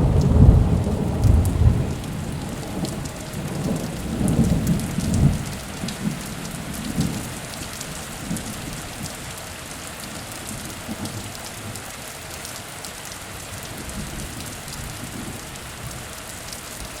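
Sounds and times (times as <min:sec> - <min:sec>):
low thunder rumble: 0:00.0 - 0:09.0
heavy rain falling: 0:00.0 - 0:17.0.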